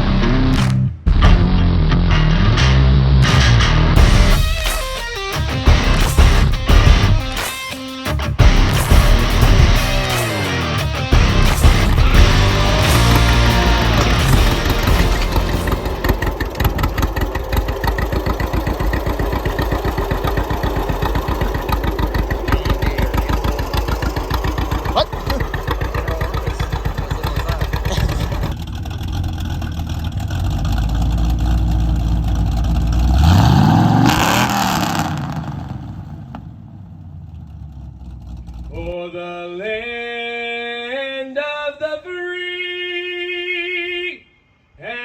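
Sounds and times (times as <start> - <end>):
vehicle engine running and revving: 8.3 - 38.9
voices: 21.4 - 28.6.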